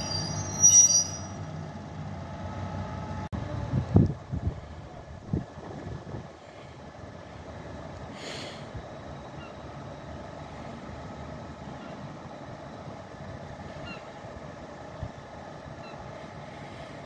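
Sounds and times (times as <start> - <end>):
train running hum: 0.0 - 17.0.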